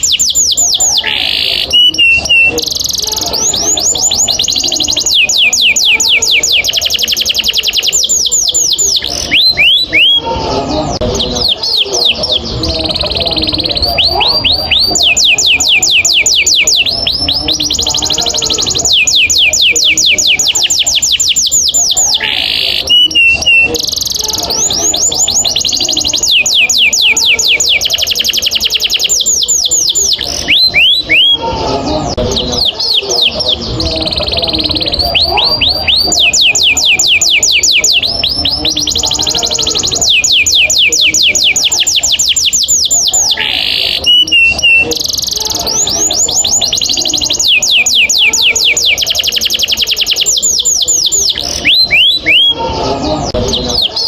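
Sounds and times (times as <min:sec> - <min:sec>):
canary singing rolls: 0:00.0 - 0:54.0.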